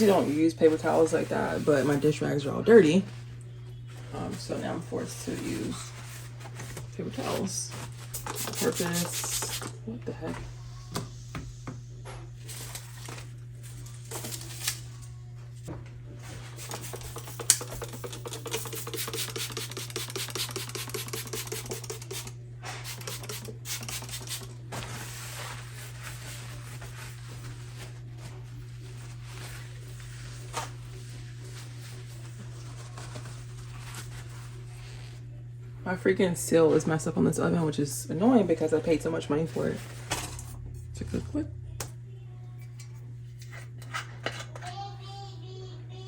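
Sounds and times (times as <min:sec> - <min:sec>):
paper towel scrubbing stovetop: 0:00.0 - 0:09.8, 0:16.1 - 0:35.4.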